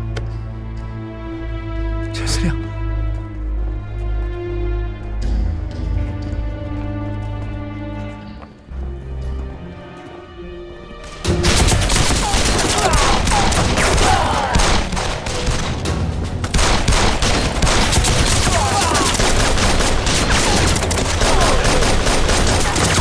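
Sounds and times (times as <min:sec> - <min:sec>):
rifle and machine-gun shots: 0:11.4 - 0:23.0.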